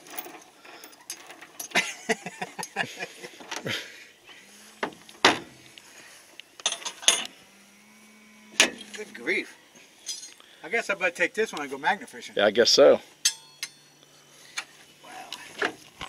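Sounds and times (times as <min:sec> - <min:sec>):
metal chain and magnets clinking: 0:00.0 - 0:01.8, 0:06.6 - 0:07.3, 0:10.0 - 0:10.4, 0:13.2 - 0:14.0
sharp metal clack: 0:13.2 - 0:13.9.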